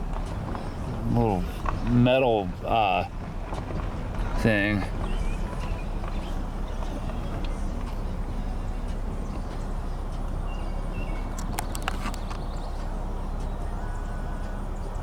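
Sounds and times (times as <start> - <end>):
low rumble and hum: 0.0 - 15.0
sharp clicks: 11.2 - 12.6.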